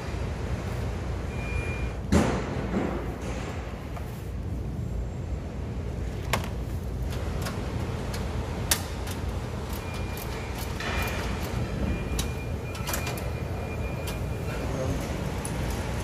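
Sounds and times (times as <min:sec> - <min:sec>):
low background rumble: 0:00.0 - 0:10.5.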